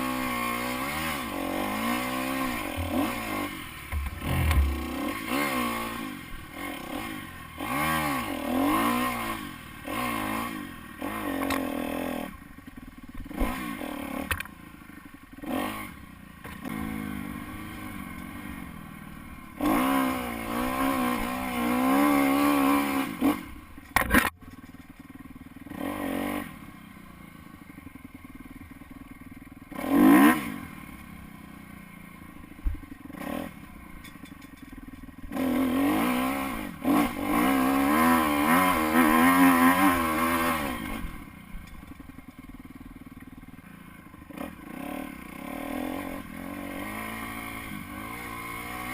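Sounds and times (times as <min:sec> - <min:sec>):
dirt bike engine revving: 0:00.0 - 0:12.6, 0:13.2 - 0:14.4, 0:15.0 - 0:24.3, 0:25.6 - 0:26.8, 0:29.7 - 0:31.0, 0:33.1 - 0:33.7, 0:35.3 - 0:41.5, 0:44.2 - 0:48.9
brief knock: 0:03.9 - 0:04.9.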